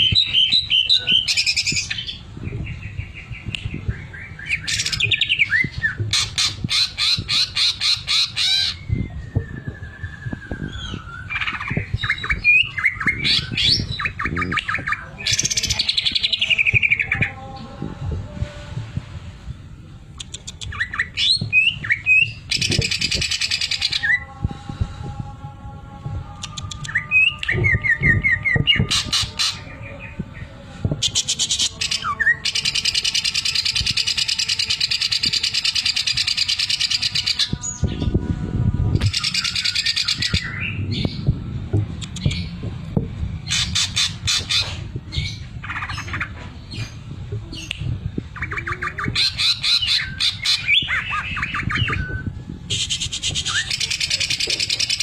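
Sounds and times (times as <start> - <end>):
bird singing whistles and trills: 0.0 - 17.2, 20.6 - 24.2, 39.0 - 41.3.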